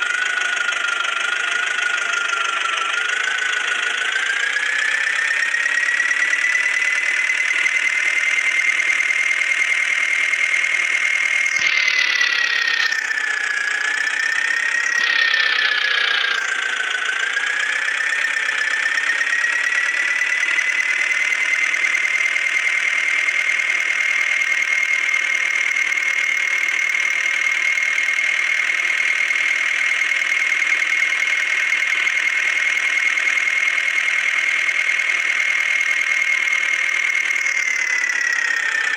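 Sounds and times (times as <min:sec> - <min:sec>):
tractor diesel engine whining: 0:00.0 - 0:38.9.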